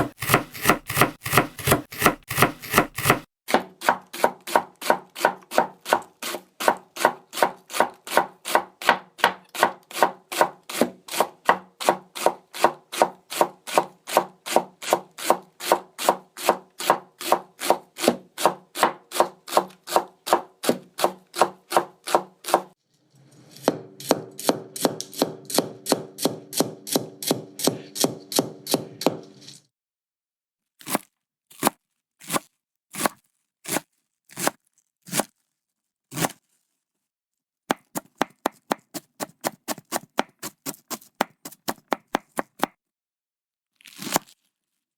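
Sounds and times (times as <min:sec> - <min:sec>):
knife chopping on cutting board: 0:00.0 - 0:22.7, 0:23.6 - 0:29.4, 0:37.7 - 0:42.8.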